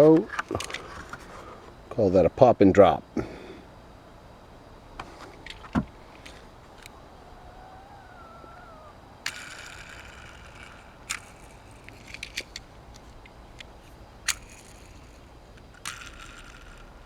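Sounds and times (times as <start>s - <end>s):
toy car and packaging clicks: 0.3s - 1.2s, 5.4s - 17.0s.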